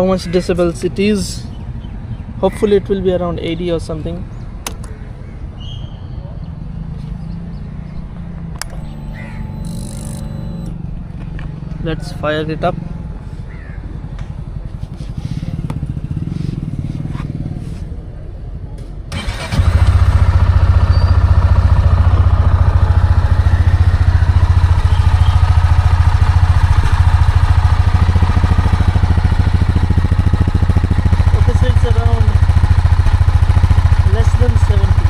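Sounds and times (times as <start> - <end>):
motorcycle engine starting and idling: 8.4 - 12.4, 13.0 - 17.6, 18.8 - 35.0.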